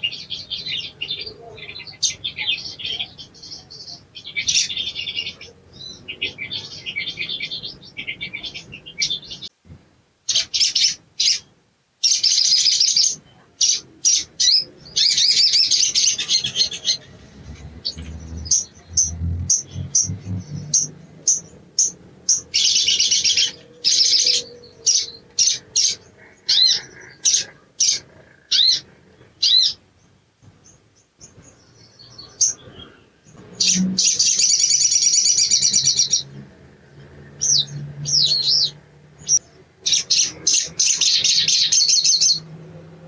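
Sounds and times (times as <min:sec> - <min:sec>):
songbird chattering trills and chirps: 0:10.3 - 0:42.5.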